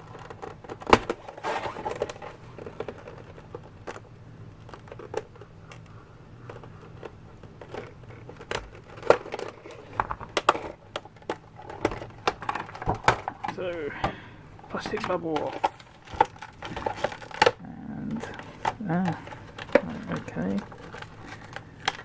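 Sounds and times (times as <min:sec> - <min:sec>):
plastic crinkling and crackling: 0:00.0 - 0:13.9, 0:14.6 - 0:22.0.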